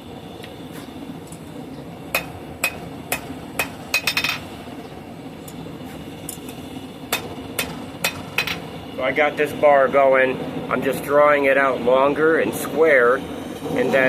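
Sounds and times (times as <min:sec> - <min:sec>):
hammer striking steel on anvil: 0:02.1 - 0:04.5, 0:07.1 - 0:08.6.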